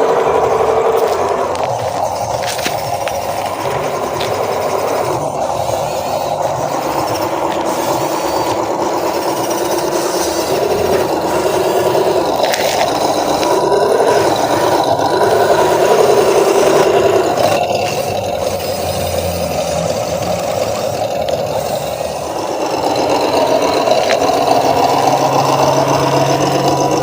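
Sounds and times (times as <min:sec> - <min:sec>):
toy truck motor whining: 0:00.0 - 0:27.0.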